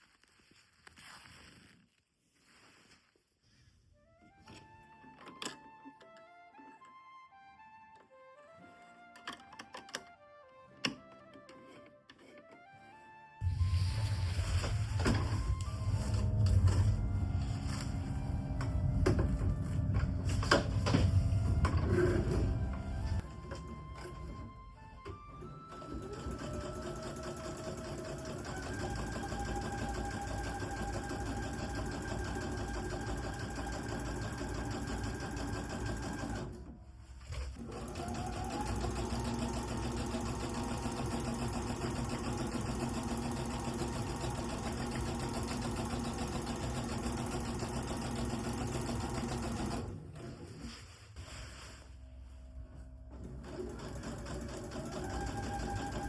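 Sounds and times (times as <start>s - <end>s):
sewing machine stitching: 25.6s - 36.7s, 37.3s - 50.5s, 53.1s - 56.0s.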